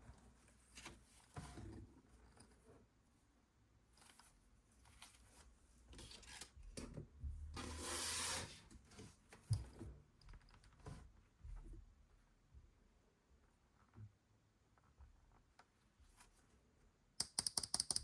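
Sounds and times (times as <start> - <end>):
sharp click: 17.2 - 18.0.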